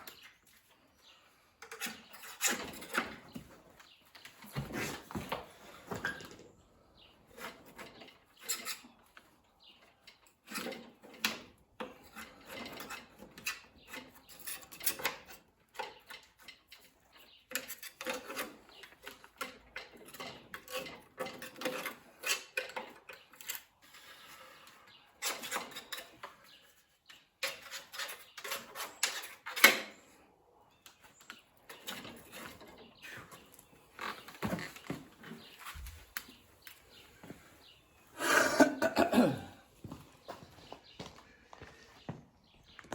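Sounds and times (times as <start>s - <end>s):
hand tools scraping metal: 1.6s - 3.3s, 11.8s - 26.8s.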